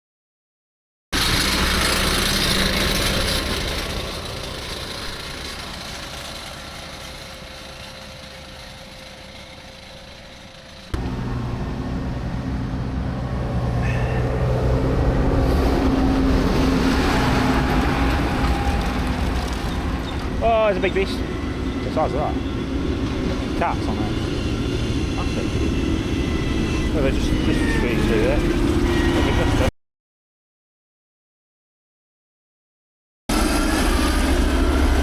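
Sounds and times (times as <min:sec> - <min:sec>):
tractor diesel engine running: 0:01.2 - 0:29.7, 0:33.3 - 0:35.0
vehicles passing on road: 0:01.2 - 0:29.7.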